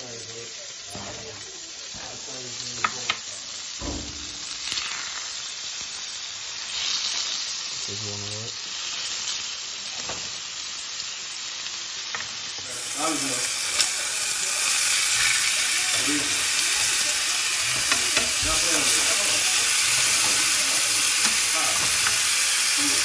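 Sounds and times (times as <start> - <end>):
chicken sizzling in skillet: 0.0 - 23.0
metal tongs clicking on pan: 17.7 - 19.3, 19.9 - 22.4.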